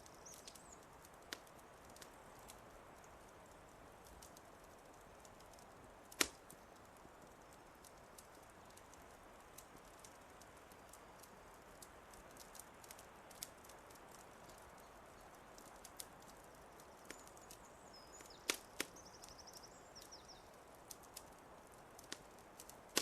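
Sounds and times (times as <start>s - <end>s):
fireplace fire crackling: 0.0s - 23.0s.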